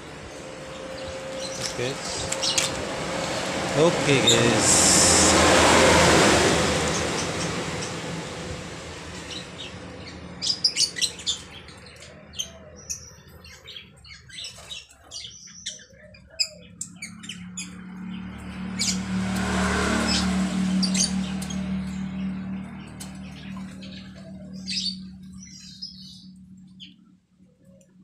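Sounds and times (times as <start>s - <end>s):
starling chirping: 9.2s - 19.1s.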